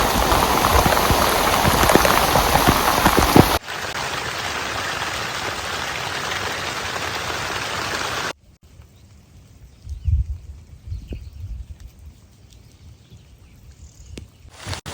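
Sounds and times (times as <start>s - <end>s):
raindrops pattering on a surface: 0.0s - 8.3s
rain hiss: 0.0s - 8.4s.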